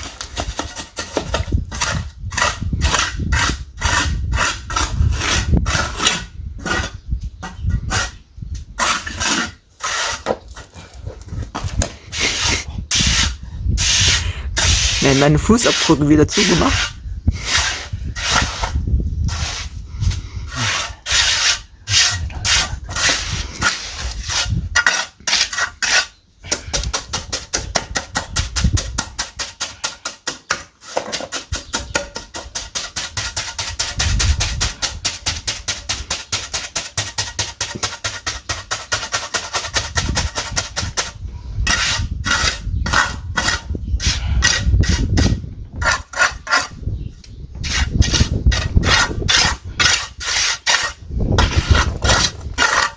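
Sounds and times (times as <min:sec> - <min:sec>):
hand tool back-and-forth strokes: 0:08.8 - 0:10.7, 0:12.1 - 0:46.8, 0:47.6 - 0:52.9.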